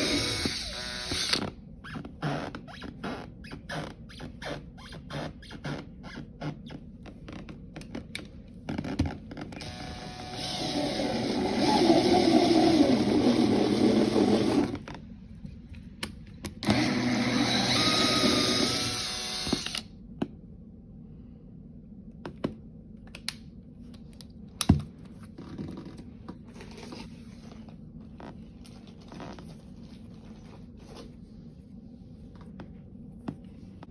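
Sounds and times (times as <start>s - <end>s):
electric power drill running: 0.0s - 1.5s, 9.6s - 14.8s, 16.6s - 19.9s.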